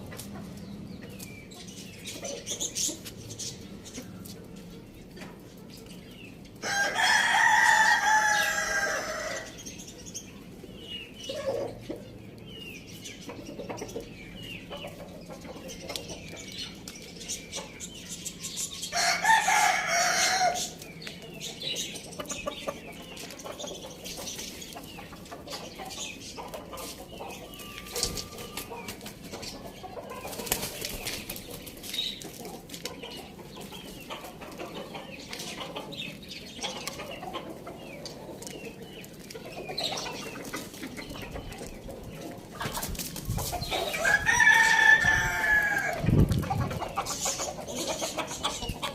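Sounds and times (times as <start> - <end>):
chickens clucking softly: 0.0 - 48.9
rooster crowing: 6.6 - 9.5, 19.0 - 20.6, 44.0 - 46.0.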